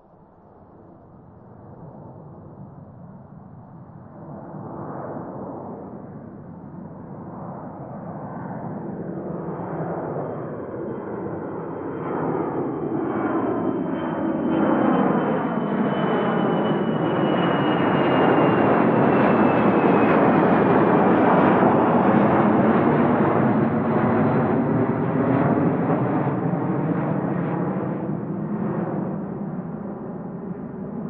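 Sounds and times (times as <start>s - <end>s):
jet airliner passing: 1.6s - 31.0s.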